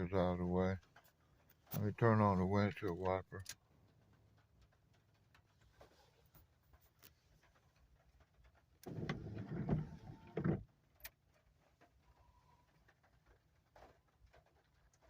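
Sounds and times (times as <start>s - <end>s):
wiper motor running: 8.8s - 10.7s
wiper blade rubbing windshield: 8.9s - 10.6s.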